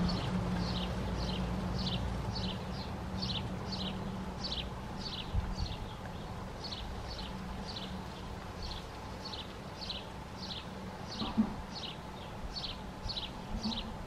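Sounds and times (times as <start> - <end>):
small bird calling: 0.0 - 14.0.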